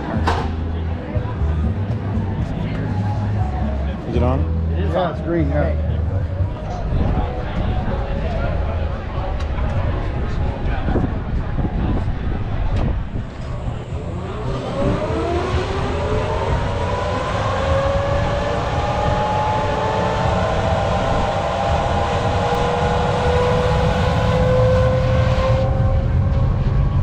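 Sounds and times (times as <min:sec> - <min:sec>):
heavy low rumble: 0:00.0 - 0:27.0
jet engine whine rising: 0:13.2 - 0:27.0.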